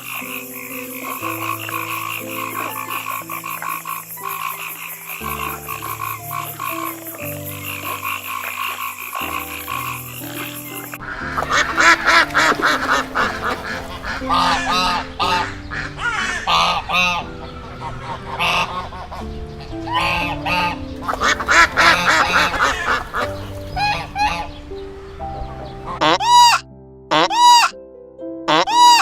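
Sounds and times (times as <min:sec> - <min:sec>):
waterfowl honking: 0:00.0 - 0:24.6, 0:25.8 - 0:27.7
background music with low notes: 0:00.0 - 0:29.0.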